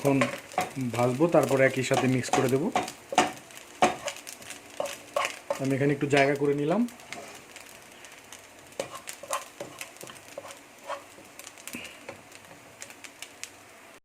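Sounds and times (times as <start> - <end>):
faint sizzle: 0.0 - 14.0
spatula scraping a frying pan: 1.8 - 5.7, 7.0 - 7.8, 8.6 - 11.7.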